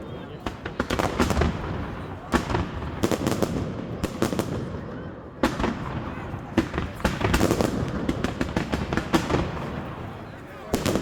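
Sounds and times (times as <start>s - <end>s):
fireworks bangs: 0.3s - 11.0s
fireworks crackling pops: 0.4s - 4.8s, 5.4s - 11.0s.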